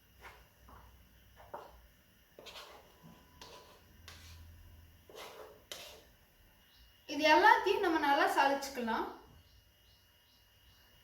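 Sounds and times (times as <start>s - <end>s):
soft kitchen scrapes and taps: 2.4s - 6.2s.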